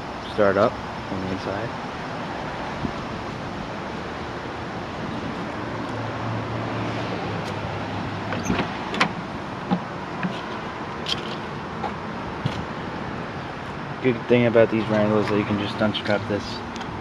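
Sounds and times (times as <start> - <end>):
steady background noise: 0.0 - 17.0
car door clicks and knocks: 8.3 - 10.3.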